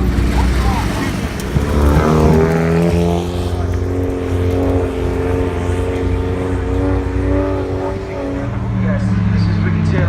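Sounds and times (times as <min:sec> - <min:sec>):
race car engine running hard: 0:00.0 - 0:10.0.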